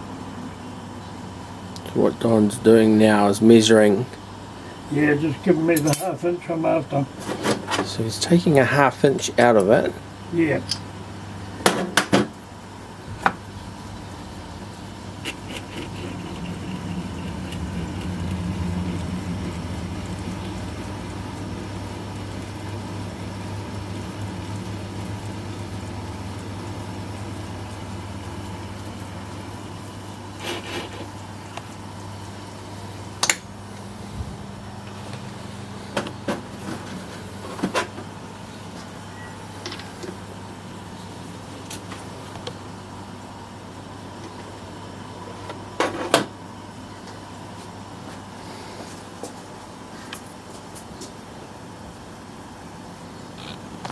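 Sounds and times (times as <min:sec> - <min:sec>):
lathe humming: 0:12.6 - 0:36.1.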